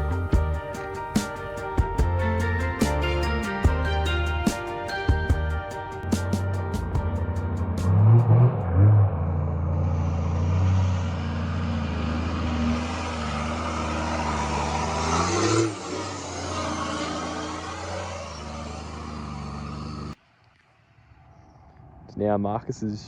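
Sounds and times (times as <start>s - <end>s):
vehicle engine under load: 8.0s - 20.2s.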